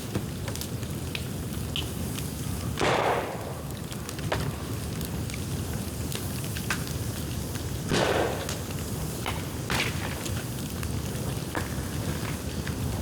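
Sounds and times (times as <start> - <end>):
fire crackles and pops: 0.0 - 13.0
low rumble of flame: 0.0 - 13.0
rushing fire flares: 1.4 - 13.0.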